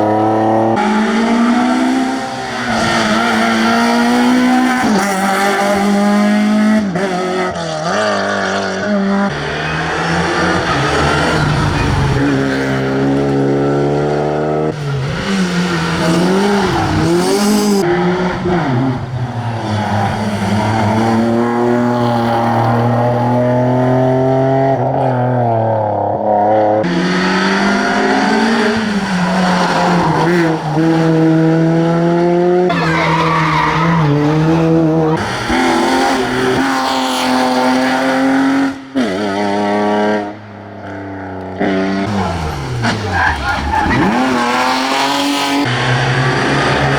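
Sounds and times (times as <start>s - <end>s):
rally car engines revving: 0.0s - 46.9s.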